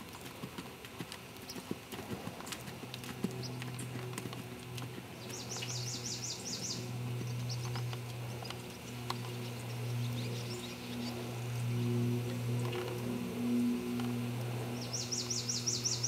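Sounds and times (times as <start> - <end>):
horse hooves on sand: 0.0 - 16.0
steady low hum: 0.0 - 16.0
bird chirping: 5.2 - 12.4, 14.7 - 16.0.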